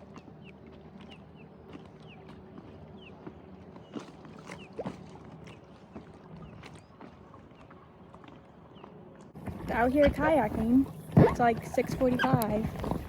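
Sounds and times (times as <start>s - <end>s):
light splashes against hull: 1.7s - 8.5s.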